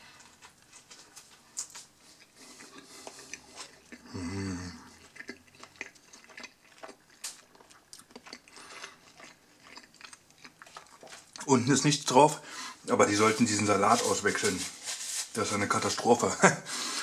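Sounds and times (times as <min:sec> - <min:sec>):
person chewing food: 0:00.0 - 0:11.7
closed-mouth hum: 0:02.2 - 0:05.3.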